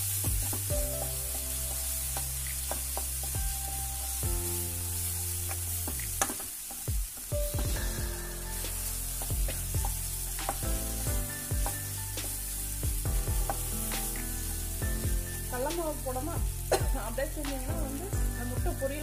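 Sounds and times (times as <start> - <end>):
background music with held tones: 0.0 - 19.0
masala sizzling in oil: 0.0 - 19.0
spatula scraping and knocking pan: 5.5 - 15.4.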